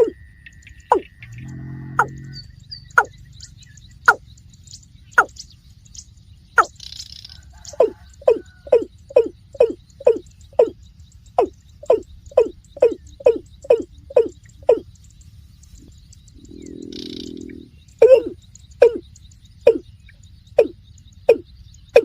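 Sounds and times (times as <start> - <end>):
low hum: 0.0 - 7.2
rail calling: 0.0 - 22.0.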